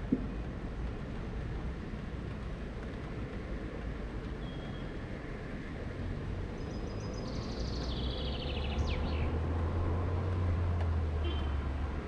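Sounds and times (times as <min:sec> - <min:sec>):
songbirds trilling: 0:06.6 - 0:09.4.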